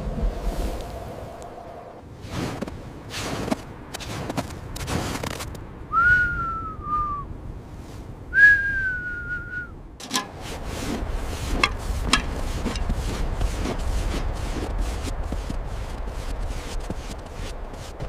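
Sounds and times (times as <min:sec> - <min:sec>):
rustling scraping noise: 0:10.0 - 0:15.0.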